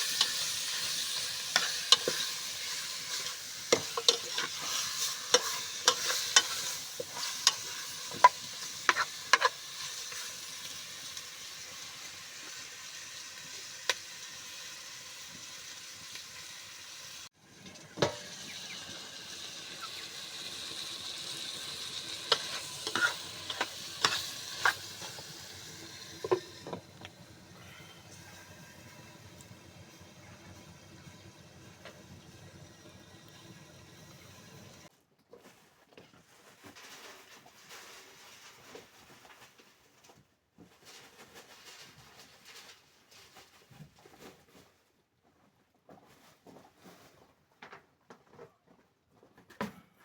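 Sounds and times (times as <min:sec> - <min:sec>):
spoon scraping a pot: 0:00.0 - 0:10.4, 0:19.8 - 0:29.5
food sizzling in hot oil: 0:00.0 - 0:34.9.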